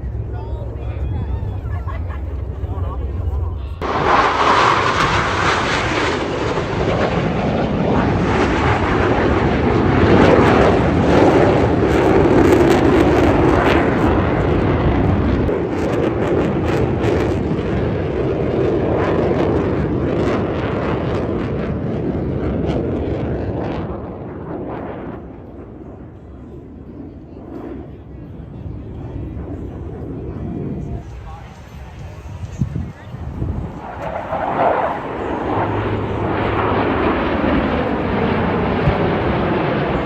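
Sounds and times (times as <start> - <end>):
jets passing overhead: 0.0 - 40.0.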